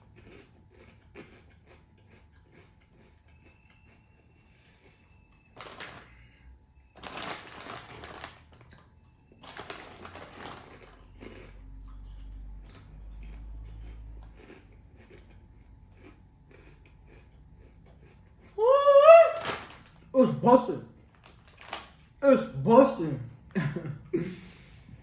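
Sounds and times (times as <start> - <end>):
chip bag crinkling: 5.6 - 6.1, 7.0 - 8.8, 9.4 - 13.4, 19.0 - 22.8
crisps crunching: 5.6 - 6.1, 7.0 - 15.3, 18.0 - 23.0.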